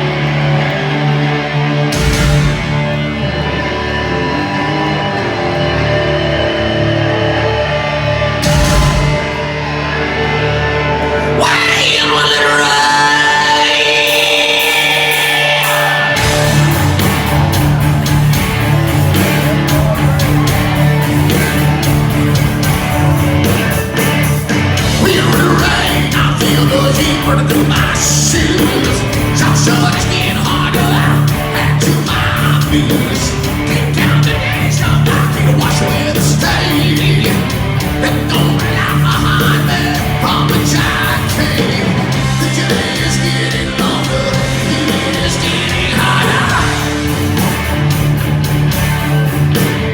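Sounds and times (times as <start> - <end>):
bass guitar: 0.0 - 49.9
drums: 0.0 - 49.9
electric guitars: 0.0 - 49.9
singer yelling: 1.9 - 47.2.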